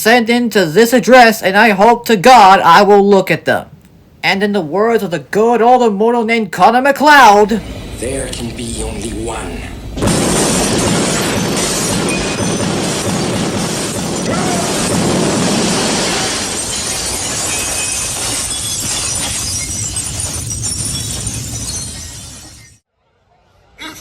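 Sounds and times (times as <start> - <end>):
loud crashing and shattering: 10.0 - 22.8.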